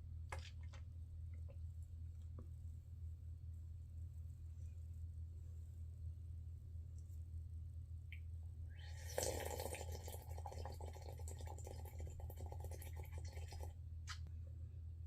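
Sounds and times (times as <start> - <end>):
steady low hum: 0.0 - 15.0
person slurping coffee: 8.8 - 13.7.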